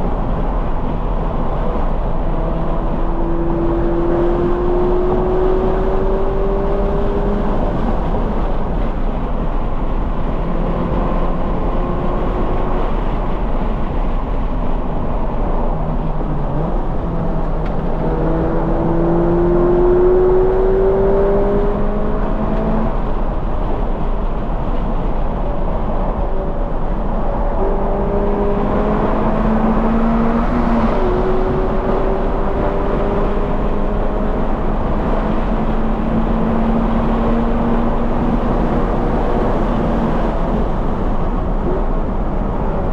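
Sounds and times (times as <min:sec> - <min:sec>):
steady rushing noise: 0:00.0 - 0:42.9
car engine revving: 0:01.0 - 0:08.4, 0:16.0 - 0:23.1, 0:26.9 - 0:42.9.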